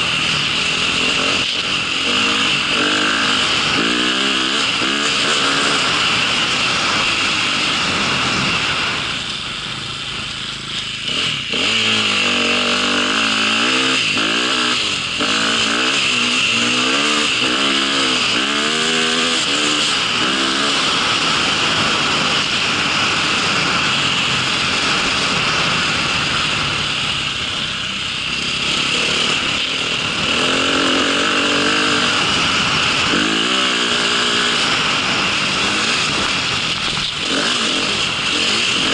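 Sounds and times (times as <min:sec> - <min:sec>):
high whine and rushing noise: 0:00.0 - 0:38.9
vehicle engine revving: 0:00.0 - 0:38.9.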